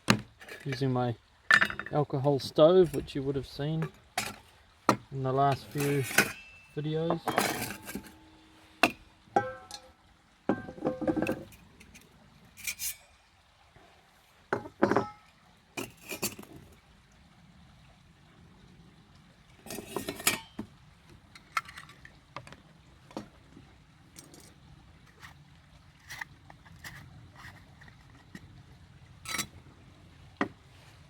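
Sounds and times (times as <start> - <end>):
metal cookware clinking: 1.5 - 1.9, 5.5 - 11.5, 12.6 - 13.2, 14.6 - 16.4, 19.7 - 20.6, 29.3 - 29.5.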